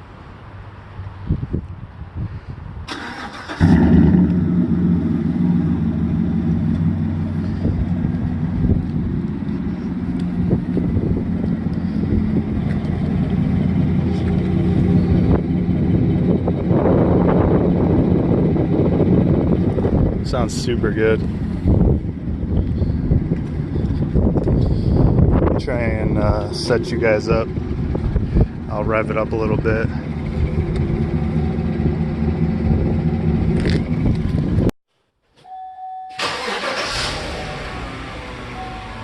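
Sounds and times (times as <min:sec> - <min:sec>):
engine cranking: 0:02.9 - 0:04.0, 0:36.2 - 0:37.5
engine starting and idling: 0:02.9 - 0:05.0, 0:36.2 - 0:39.0.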